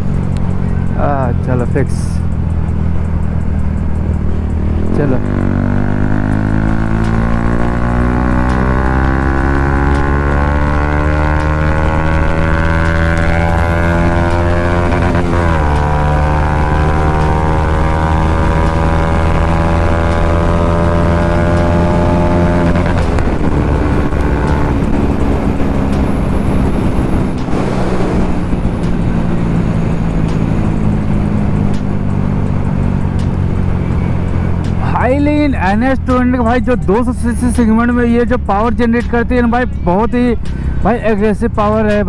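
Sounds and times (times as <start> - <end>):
motorcycle engine at speed: 0.0 - 39.2.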